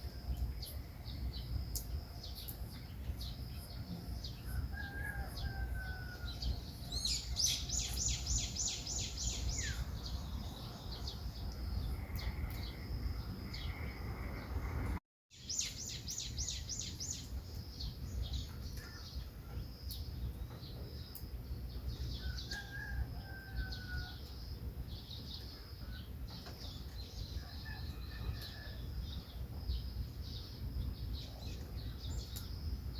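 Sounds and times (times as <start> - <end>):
small songbirds singing: 0.0 - 14.7, 15.4 - 32.9
low outdoor rumble: 0.0 - 15.0.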